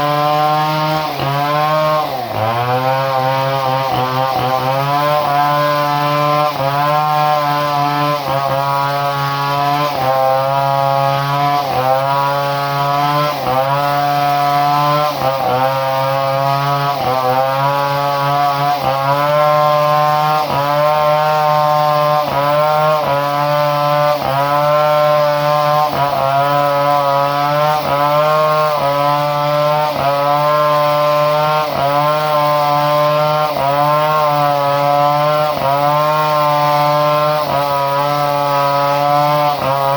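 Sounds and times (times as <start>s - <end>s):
chainsaw engine running: 0.0s - 39.9s.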